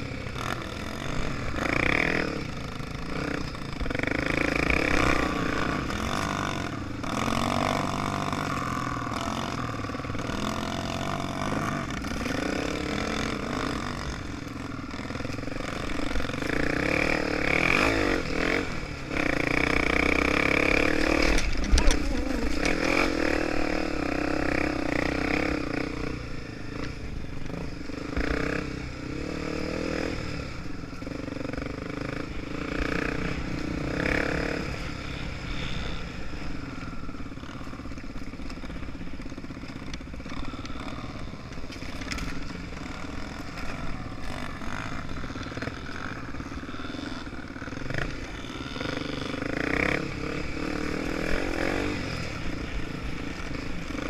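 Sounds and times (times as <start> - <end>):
motorcycle engine running: 0.0 - 54.0
motorcycle clattering over rough ground: 20.6 - 23.5, 37.6 - 46.3.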